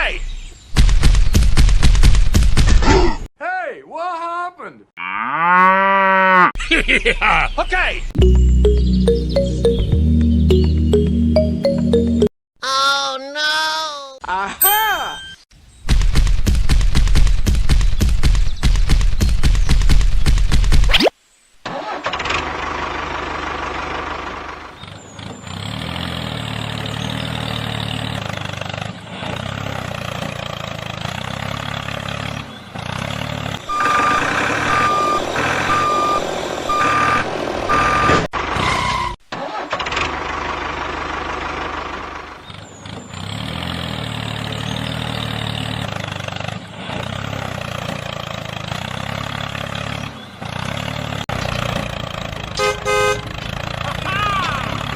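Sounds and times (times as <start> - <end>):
tractor engine running: 21.7 - 38.6, 39.3 - 54.9
reversing beeper: 33.7 - 38.3.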